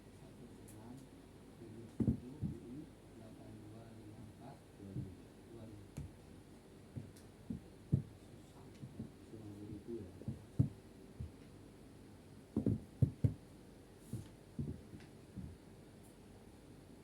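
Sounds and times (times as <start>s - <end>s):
soft low thumps and knocks: 2.0s - 2.8s, 4.9s - 5.2s, 7.0s - 8.2s, 8.8s - 9.2s, 10.2s - 11.4s, 12.6s - 13.4s, 14.1s - 15.6s.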